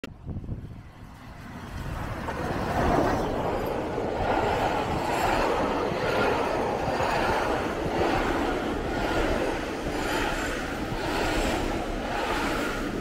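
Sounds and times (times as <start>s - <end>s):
steam train passing: 0.2s - 13.0s.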